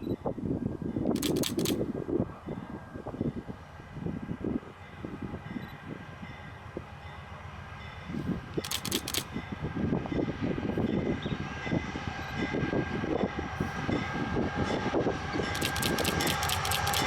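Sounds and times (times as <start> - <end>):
freight train wheels rumbling: 0.5 - 17.0
sharp rapid clicks: 1.2 - 1.8, 8.6 - 9.3, 15.6 - 17.0.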